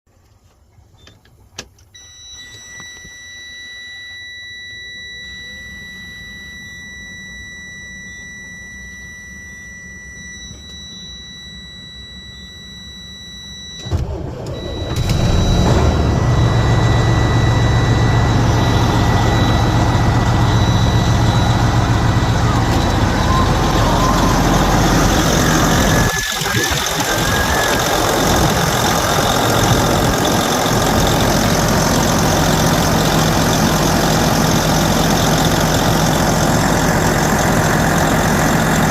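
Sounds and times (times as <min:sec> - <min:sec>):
high-pitched warning buzzer: 0:02.0 - 0:14.0, 0:14.6 - 0:33.0
diesel engine starting and idling: 0:04.2 - 0:38.9.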